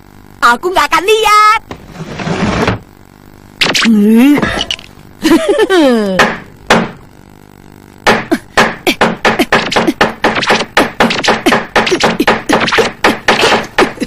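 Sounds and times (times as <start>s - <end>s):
cartoon knocking: 8.0s - 14.0s.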